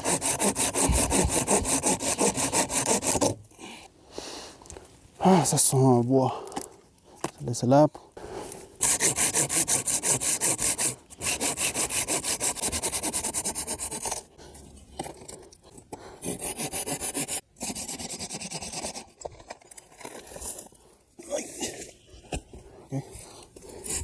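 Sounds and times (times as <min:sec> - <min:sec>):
hand saw cutting wood: 0:00.0 - 0:03.4, 0:08.8 - 0:14.3, 0:16.0 - 0:19.2.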